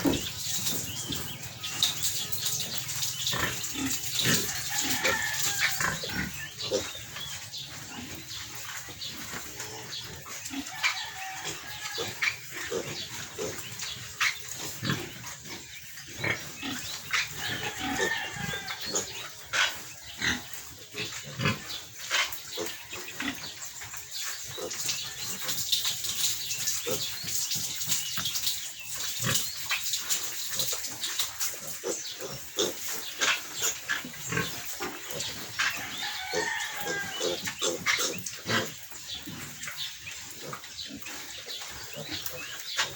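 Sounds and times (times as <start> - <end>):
piglets squealing: 31.6 - 38.8.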